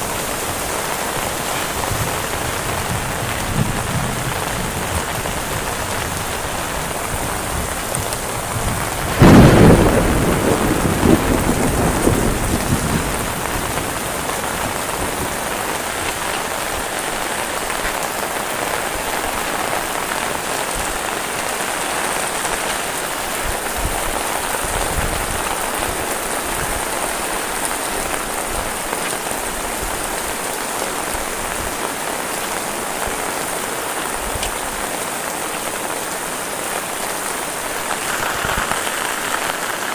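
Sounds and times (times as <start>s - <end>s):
heavy rain falling: 0.0s - 39.9s
thunder clap rumbling: 0.1s - 17.4s, 37.8s - 39.9s.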